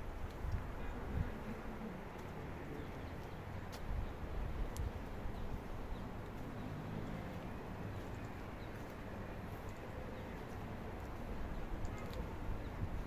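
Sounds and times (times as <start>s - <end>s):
wind on microphone: 0.0s - 1.7s, 12.2s - 13.0s.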